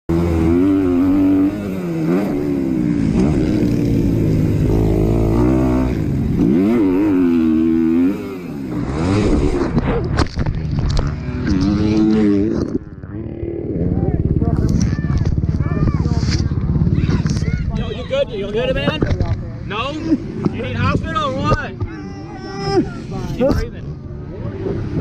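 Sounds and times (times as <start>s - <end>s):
dirt bike engine revving: 0.1s - 18.6s.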